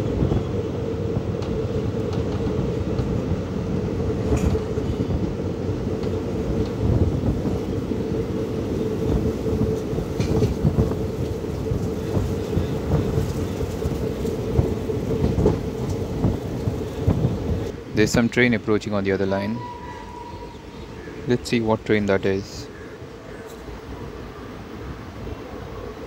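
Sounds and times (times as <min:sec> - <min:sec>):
wheels rumbling on rails: 0:00.0 - 0:26.0
faint clicks over rail joints: 0:04.2 - 0:05.0, 0:09.0 - 0:17.8.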